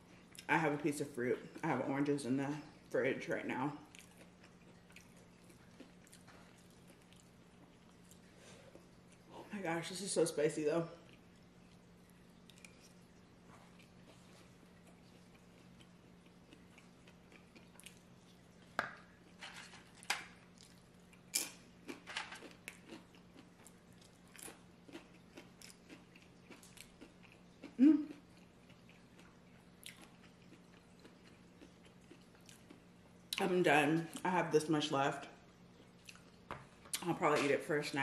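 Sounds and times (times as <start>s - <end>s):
faint room hum: 0.0s - 38.0s
person chewing: 3.8s - 9.3s, 11.0s - 33.1s, 35.7s - 37.1s.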